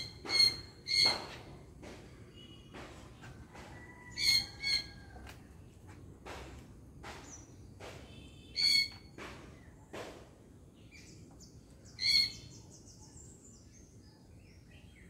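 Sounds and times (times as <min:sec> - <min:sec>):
bird screeching: 0:00.0 - 0:01.3, 0:04.1 - 0:05.0, 0:08.6 - 0:09.0.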